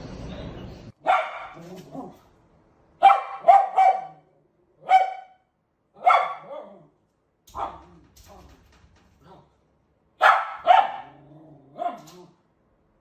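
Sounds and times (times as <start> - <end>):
dog barking: 1.0 - 2.2, 3.0 - 6.9, 7.5 - 8.0, 10.2 - 12.3.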